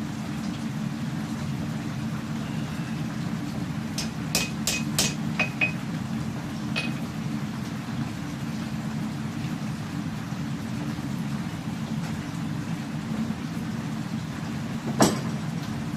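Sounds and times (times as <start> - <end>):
hammer striking hot steel: 4.0 - 5.8, 6.8 - 7.0.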